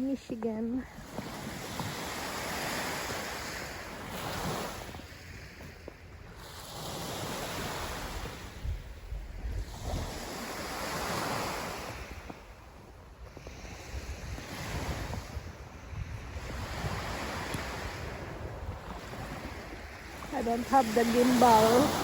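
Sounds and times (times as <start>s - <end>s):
wind rushing over microphone: 0.9s - 22.0s.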